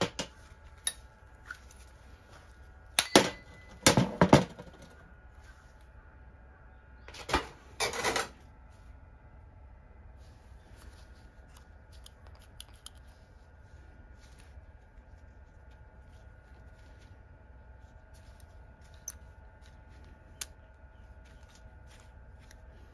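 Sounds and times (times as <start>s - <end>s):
tools clattering: 3.0s - 4.6s.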